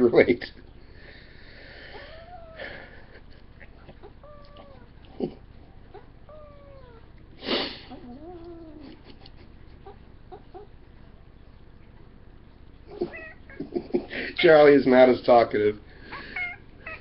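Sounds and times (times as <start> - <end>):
cat meowing: 1.9 - 2.7, 3.6 - 5.1, 5.9 - 7.1, 7.9 - 9.0, 13.0 - 13.6, 16.2 - 17.0.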